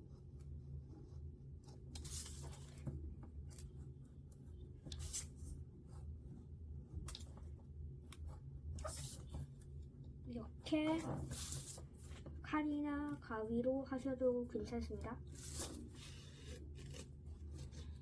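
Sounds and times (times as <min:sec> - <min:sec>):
paper rustling: 0:01.9 - 0:03.7, 0:11.2 - 0:12.4, 0:15.3 - 0:18.0
blade cutting paper: 0:15.3 - 0:18.0.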